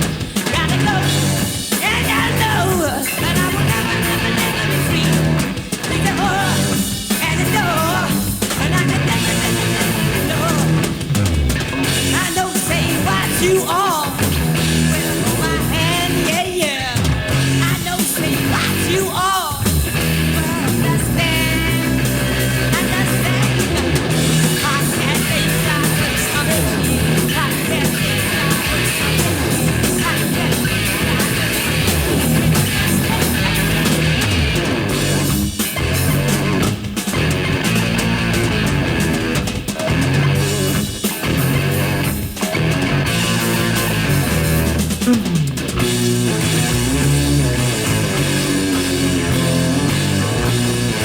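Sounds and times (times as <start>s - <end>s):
bending electric guitar lead: 0.0s - 51.0s
hard rock band playing: 0.0s - 51.0s.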